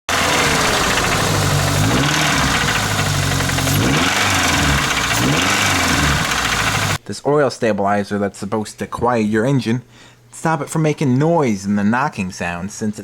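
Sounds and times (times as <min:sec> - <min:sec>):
fast ticking engine knock: 0:00.1 - 0:07.0
truck engine idling and revving: 0:00.1 - 0:07.0.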